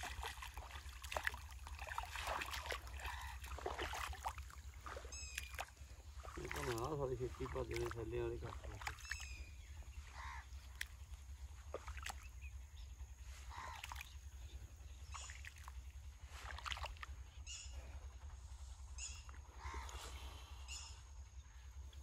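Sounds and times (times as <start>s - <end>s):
lower arched bird calls: 0.0s - 22.0s
steady low rumble: 0.0s - 22.0s
short high bird calls: 4.8s - 6.8s.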